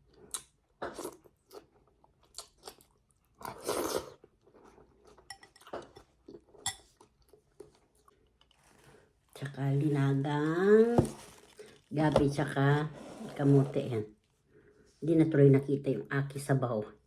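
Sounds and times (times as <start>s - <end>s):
person chewing and crunching food: 0.0s - 9.4s, 10.3s - 12.0s.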